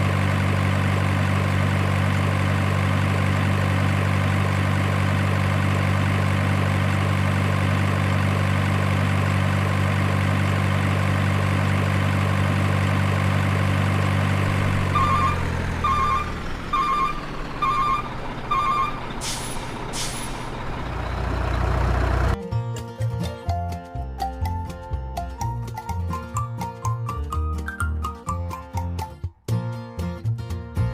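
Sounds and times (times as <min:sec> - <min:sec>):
diesel engine hum effect: 0:00.0 - 0:22.4
reversing beeps: 0:15.0 - 0:19.1
air brake hisses: 0:19.2 - 0:20.6.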